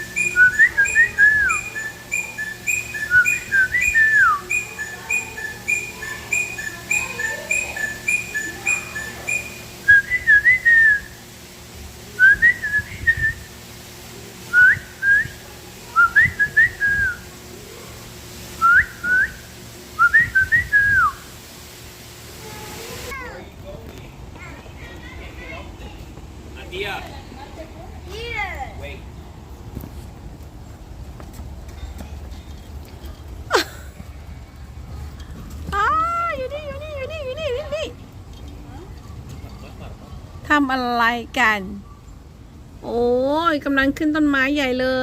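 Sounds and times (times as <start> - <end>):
bird whistled notes: 0.0 - 11.2, 14.5 - 15.4, 16.0 - 17.2, 18.6 - 21.3
birds chirping: 0.0 - 11.2.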